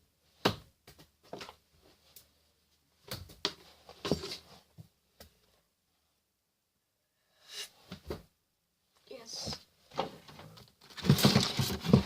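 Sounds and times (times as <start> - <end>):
rustling: 9.9 - 12.0.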